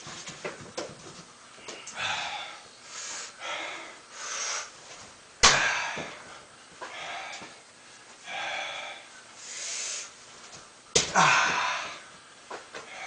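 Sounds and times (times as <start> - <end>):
hard breathing: 1.6 - 4.8, 5.7 - 10.2.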